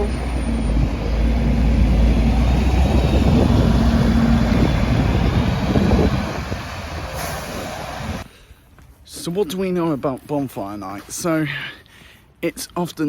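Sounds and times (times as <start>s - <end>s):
bus engine pulling away: 0.0s - 8.3s.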